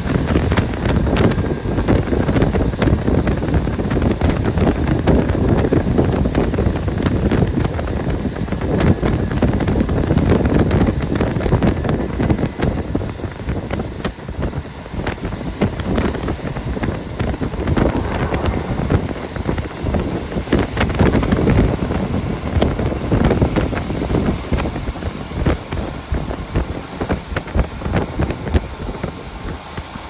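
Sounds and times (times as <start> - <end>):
wind buffeting microphone: 16.4 - 23.5.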